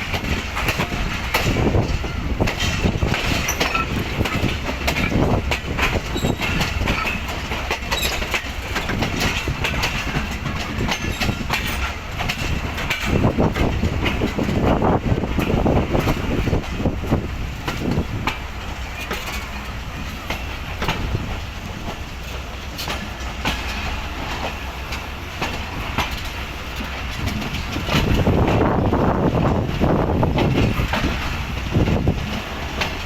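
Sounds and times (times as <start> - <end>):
train rumbling past: 0.0 - 33.0
train wheels clacking on rail joints: 0.0 - 33.0.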